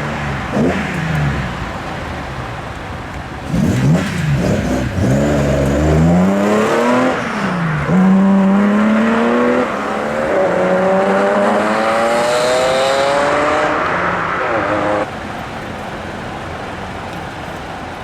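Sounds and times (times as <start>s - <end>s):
car engine accelerating hard: 3.3s - 15.1s.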